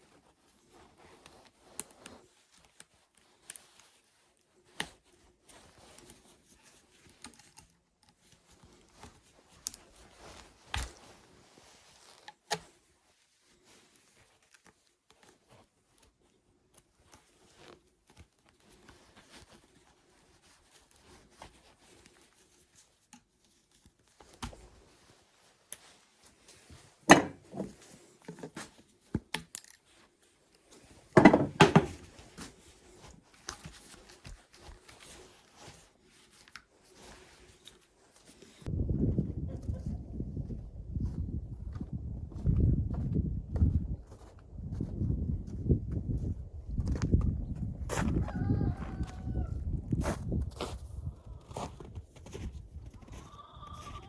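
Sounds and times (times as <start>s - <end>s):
tools clattering: 27.1s - 28.6s, 31.2s - 32.1s.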